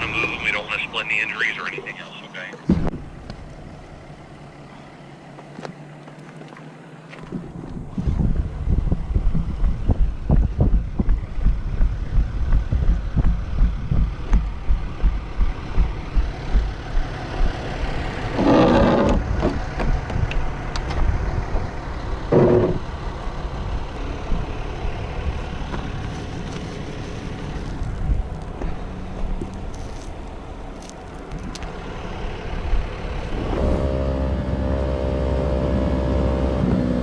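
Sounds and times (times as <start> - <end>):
road vehicle noise: 0.0 - 37.0
wind buffeting microphone: 7.3 - 25.4, 27.4 - 29.5.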